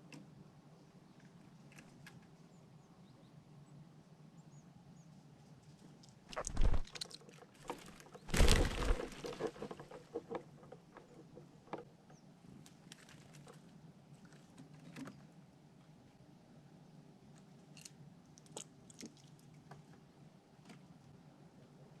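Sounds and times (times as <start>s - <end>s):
loud bumps with rustling: 7.7s - 9.8s.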